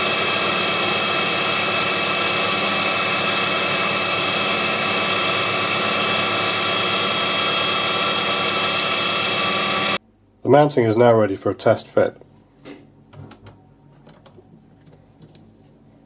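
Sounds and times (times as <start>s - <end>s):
mini lathe motor whine: 0.0s - 10.0s.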